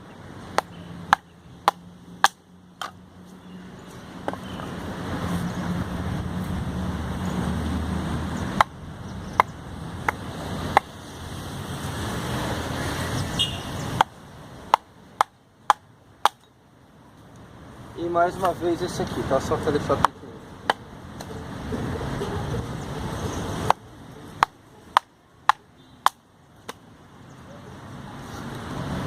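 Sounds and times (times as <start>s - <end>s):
hatchet chopping firewood: 0.5s - 3.0s, 8.5s - 11.0s, 13.9s - 16.5s, 19.9s - 21.4s, 23.6s - 26.9s.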